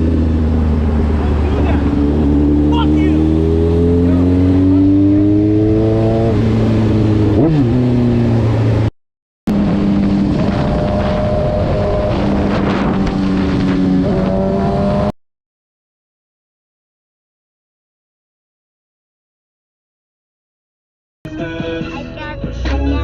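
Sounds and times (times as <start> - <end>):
car engine accelerating: 0.0 - 8.9, 9.5 - 15.2
road noise: 0.0 - 8.9, 9.5 - 15.2.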